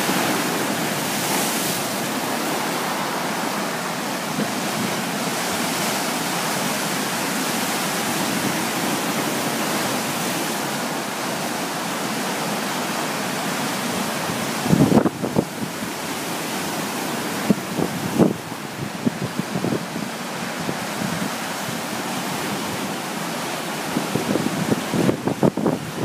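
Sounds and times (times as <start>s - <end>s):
wind buffeting microphone: 14.2s - 16.0s, 17.3s - 23.0s, 23.9s - 26.0s
strong wind rushing: 23.9s - 26.0s.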